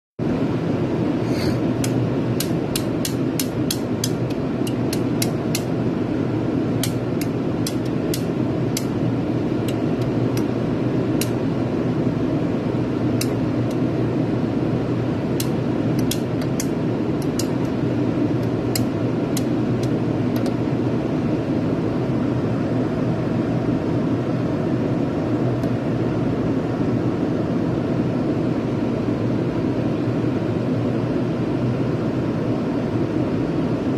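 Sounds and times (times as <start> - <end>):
low machine hum: 0.2 - 33.9
sharp clicks or taps: 6.8 - 8.9, 15.4 - 17.8.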